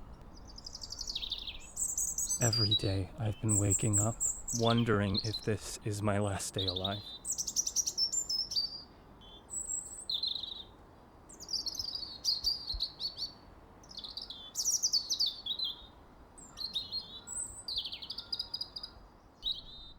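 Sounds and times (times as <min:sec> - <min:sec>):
faint steady hiss: 0:00.0 - 0:07.6
small birds chirping: 0:00.0 - 0:19.9.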